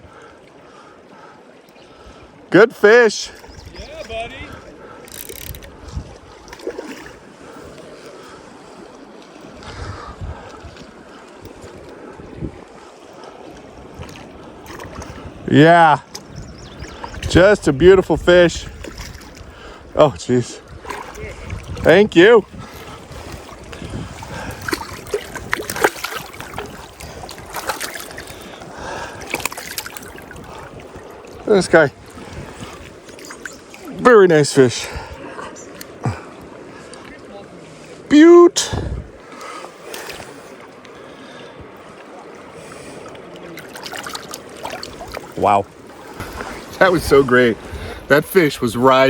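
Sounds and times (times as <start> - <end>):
river water flowing: 0.0 - 49.0
water splashes and drips: 3.2 - 17.5, 18.6 - 19.8, 20.5 - 37.9, 38.6 - 49.0
wind buffeting the microphone: 3.4 - 7.9, 9.4 - 34.0, 38.6 - 39.3, 44.7 - 49.0.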